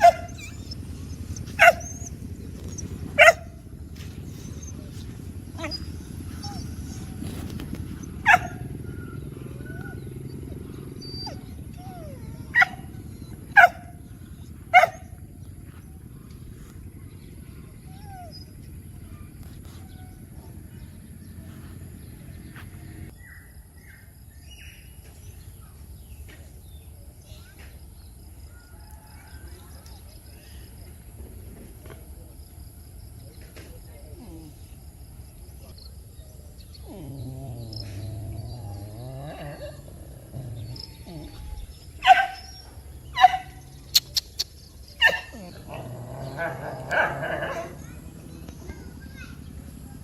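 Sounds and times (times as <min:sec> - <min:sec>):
dogs barking and yelping: 0:00.0 - 0:23.1, 0:36.6 - 0:50.0
low rumble: 0:00.0 - 0:23.1
birds chirping: 0:00.0 - 0:27.6, 0:33.2 - 0:50.0.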